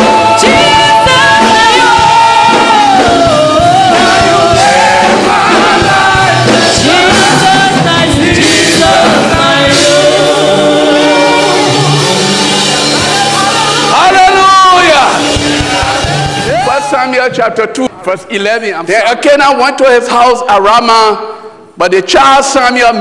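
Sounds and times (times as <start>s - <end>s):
band with steady drum beat: 0.0s - 17.0s
voices singing with vibrato: 0.0s - 17.3s.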